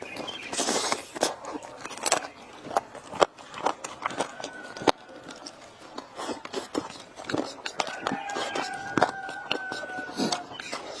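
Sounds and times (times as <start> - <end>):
biting and chewing: 0.0 - 11.0
crunchy rustle: 0.0 - 11.0
sharp clicks and crackles: 0.2 - 9.7.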